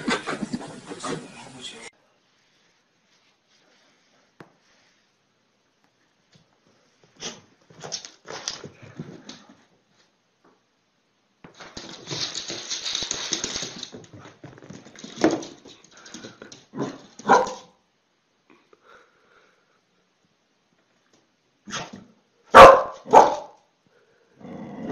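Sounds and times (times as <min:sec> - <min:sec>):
dog barking: 0:16.8 - 0:17.8, 0:22.5 - 0:23.6.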